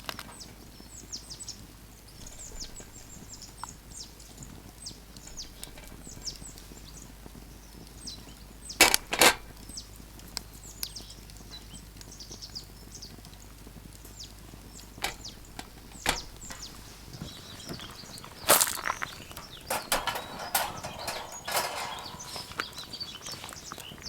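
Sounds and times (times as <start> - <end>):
songbirds chirping: 0.0 - 24.0
sharp clinks: 18.5 - 23.0.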